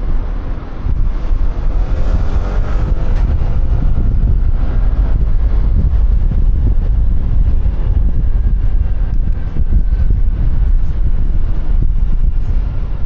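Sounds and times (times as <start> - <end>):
wind buffeting microphone: 0.0 - 13.0
scooter engine accelerating: 1.0 - 10.4.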